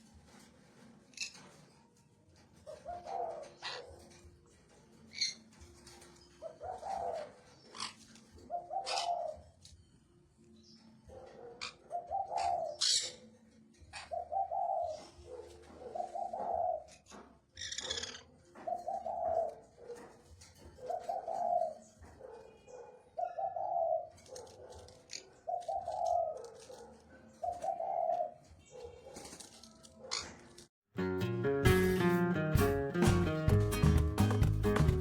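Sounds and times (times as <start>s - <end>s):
bird cooing: 2.6s - 4.3s, 5.1s - 9.6s, 11.6s - 17.1s, 17.8s - 22.1s, 22.7s - 28.5s.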